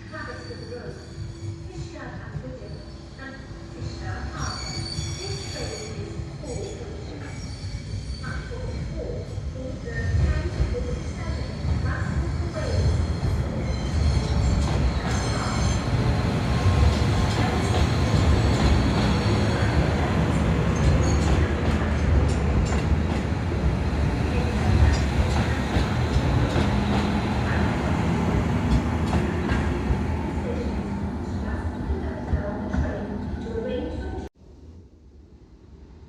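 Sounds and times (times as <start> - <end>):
train rumbling past: 7.0 - 34.3.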